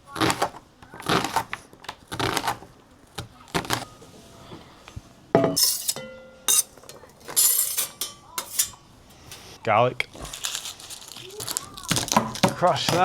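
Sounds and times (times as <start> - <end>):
metal cookware clinking: 5.4 - 9.5.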